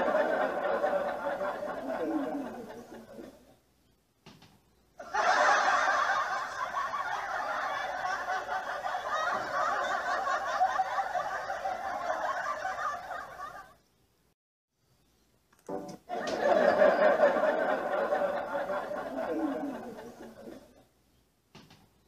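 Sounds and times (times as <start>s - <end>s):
crowd laughing: 0.0s - 3.5s, 5.0s - 13.8s, 16.1s - 20.8s.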